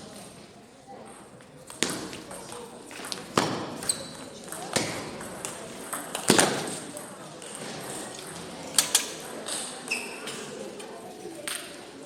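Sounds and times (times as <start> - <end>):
short high squeaks: 9.9 - 10.3.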